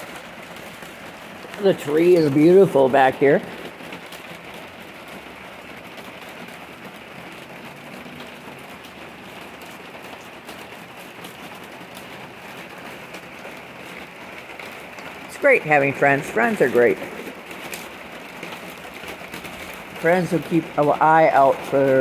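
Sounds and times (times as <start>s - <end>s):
steady rainfall: 0.0s - 22.0s.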